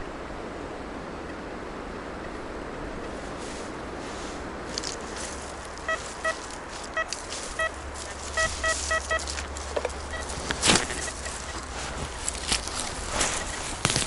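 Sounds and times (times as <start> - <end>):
road traffic: 0.0 - 14.0
wind rumble: 0.0 - 14.0
loud crunch: 4.7 - 14.0
metal detector beeps: 5.8 - 14.0.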